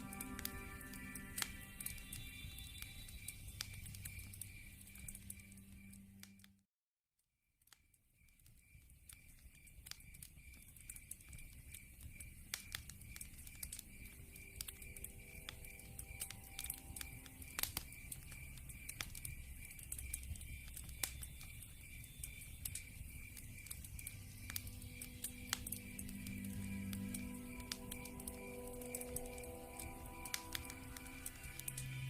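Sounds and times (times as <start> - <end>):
high pulsing chirp: 0.0 - 6.2, 13.1 - 32.0
low rumble of flames: 0.0 - 6.4, 8.5 - 32.0
log fire crackling and popping: 0.0 - 6.5, 7.6 - 32.0.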